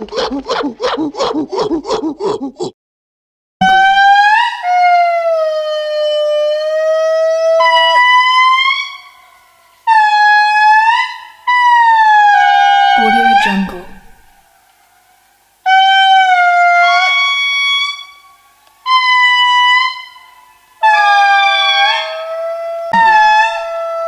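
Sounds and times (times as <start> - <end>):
animal howling: 20.8 - 24.0.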